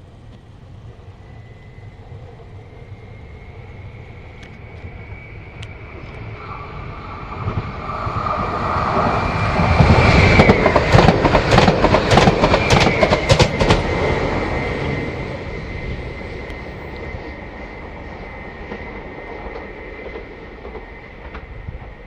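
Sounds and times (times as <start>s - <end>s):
train passing: 0.0s - 22.0s
high wheel squeal: 1.1s - 11.4s, 12.3s - 21.8s.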